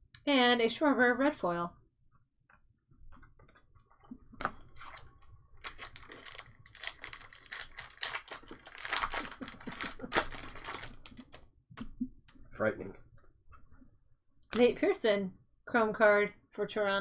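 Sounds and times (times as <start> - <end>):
cards crinkling and clicking: 4.4 - 11.4.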